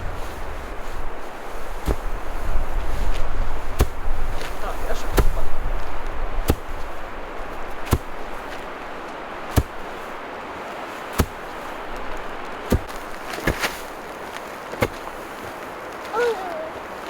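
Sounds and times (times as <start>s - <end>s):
sharp knocks: 11.2s - 11.4s.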